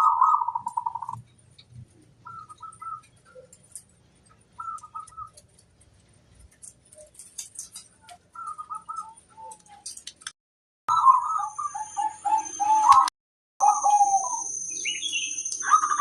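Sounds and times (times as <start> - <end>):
dove cooing: 0.0 - 1.2, 6.9 - 9.9, 10.9 - 14.5, 15.6 - 16.0
small birds chirping: 0.0 - 10.2, 10.9 - 16.0.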